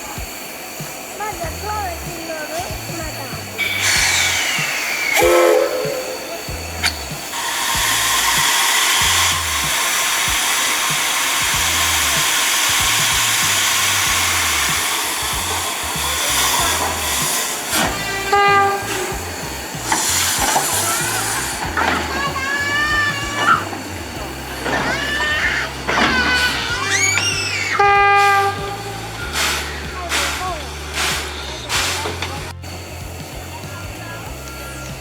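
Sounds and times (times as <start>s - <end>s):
background music with bass: 0.0s - 35.0s
steam hissing: 0.0s - 35.0s
train whistle blast: 0.0s - 35.0s.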